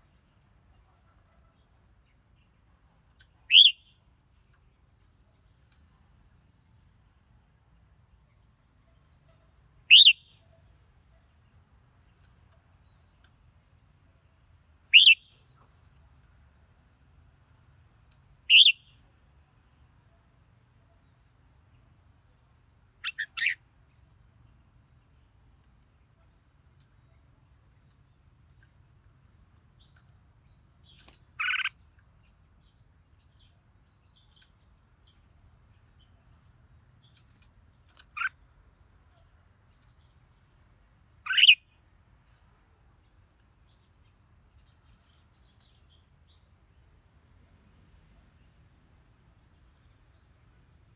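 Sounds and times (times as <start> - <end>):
bird calls: 3.5 - 3.9, 9.0 - 10.4, 14.9 - 15.4, 18.5 - 18.9, 23.0 - 23.6, 30.8 - 31.8, 38.0 - 38.4, 41.2 - 41.6
bird giving loud calls: 9.9 - 10.2, 41.3 - 41.6.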